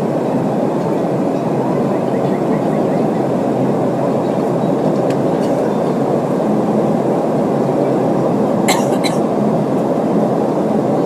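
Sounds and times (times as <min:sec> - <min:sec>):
jet engines roaring in cabin: 0:00.0 - 0:11.0.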